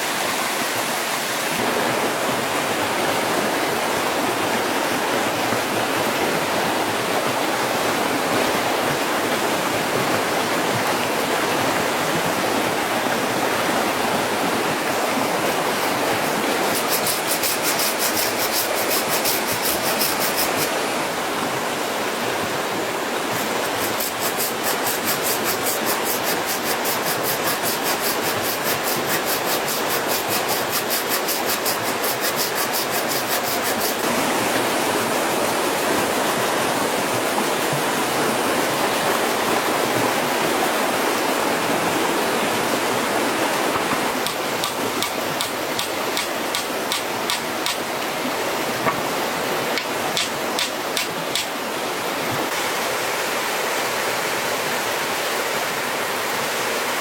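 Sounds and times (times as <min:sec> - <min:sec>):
running water: 0:00.0 - 0:57.0
fast high-pitched rasping: 0:16.7 - 0:20.7, 0:23.8 - 0:34.0.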